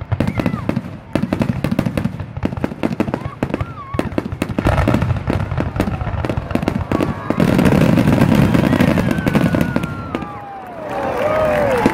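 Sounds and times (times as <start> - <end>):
fireworks bangs: 0.0 - 11.9
fireworks crackling: 0.0 - 11.9.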